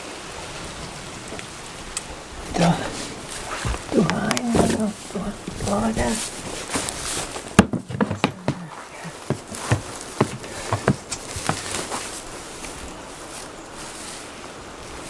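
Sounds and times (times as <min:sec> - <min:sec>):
raindrops tapping on hard surface: 0:00.0 - 0:11.9
steady hiss of rain: 0:00.0 - 0:15.0.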